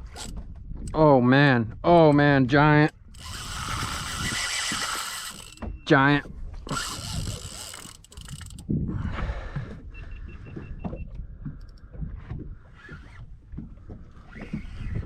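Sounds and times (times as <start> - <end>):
fishing reel whirring: 0.0 - 0.3, 2.9 - 5.7, 6.7 - 8.6.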